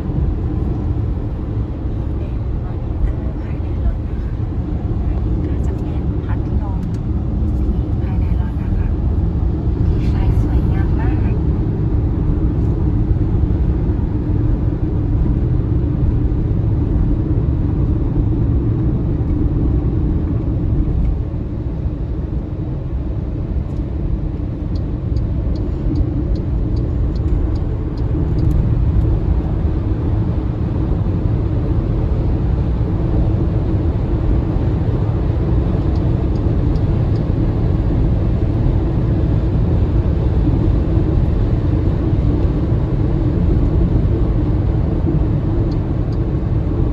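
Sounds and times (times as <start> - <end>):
road and tyre rumble: 0.0 - 46.9
faint light ticks: 24.7 - 29.1, 35.9 - 37.3.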